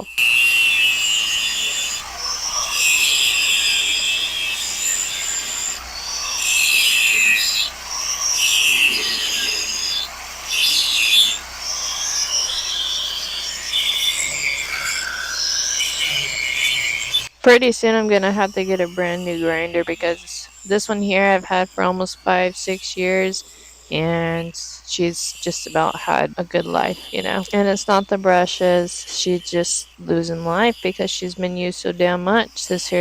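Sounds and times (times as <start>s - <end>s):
grinder grinding metal: 0.0s - 17.3s.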